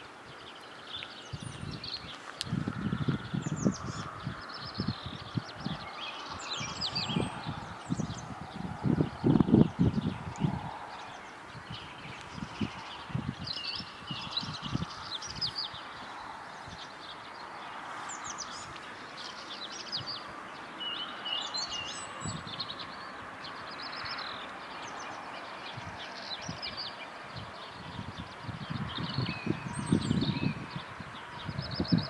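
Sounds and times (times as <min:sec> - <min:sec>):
outdoor background noise: 0:00.0 - 0:32.0
small birds chirping: 0:00.0 - 0:32.0.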